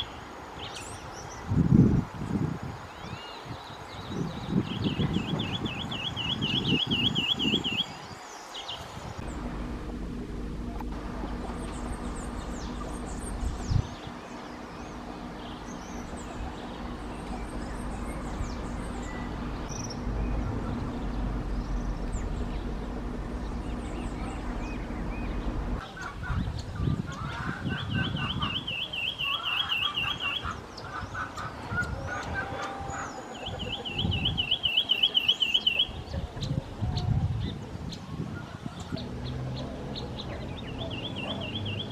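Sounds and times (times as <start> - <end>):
bird singing trilled notes: 2.9 - 9.7, 10.4 - 36.5, 39.0 - 41.9
steady low hum: 9.2 - 27.3
other bird calls: 10.8 - 37.6.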